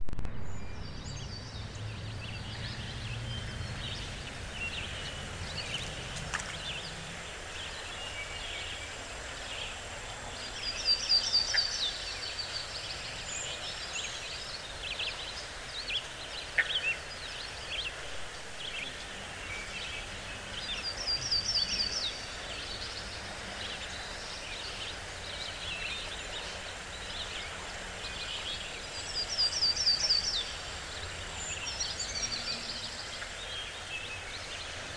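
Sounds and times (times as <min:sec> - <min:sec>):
forest birds chirping: 0:00.4 - 0:34.9
steady background hiss: 0:00.4 - 0:34.9.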